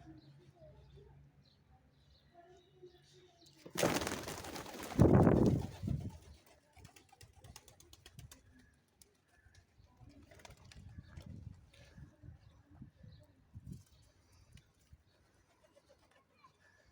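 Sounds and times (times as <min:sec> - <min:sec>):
pigeon wings flapping: 0:03.7 - 0:08.4.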